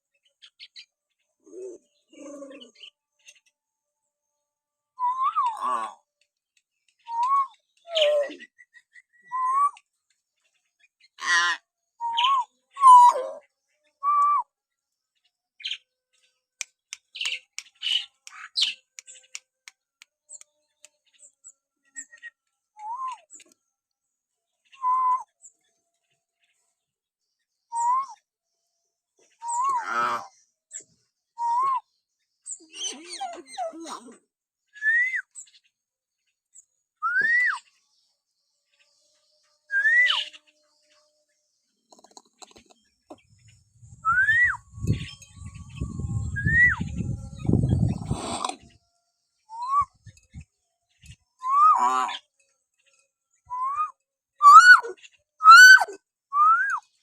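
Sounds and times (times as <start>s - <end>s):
harsh bird squawks: 11.2s - 13.2s, 54.4s - 56.7s
myna bird whistling: 12.0s - 13.2s, 27.7s - 28.2s, 34.8s - 35.4s, 37.0s - 37.6s, 39.7s - 40.4s, 43.9s - 48.2s, 49.5s - 50.2s, 51.4s - 51.8s, 53.5s - 56.8s
thin bird chirps: 36.3s - 57.0s.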